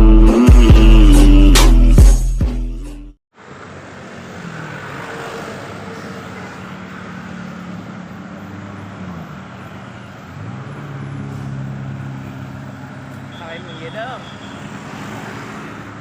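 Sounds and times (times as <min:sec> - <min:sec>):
road noise: 0:03.3 - 0:16.0
bus engine humming: 0:03.4 - 0:14.8.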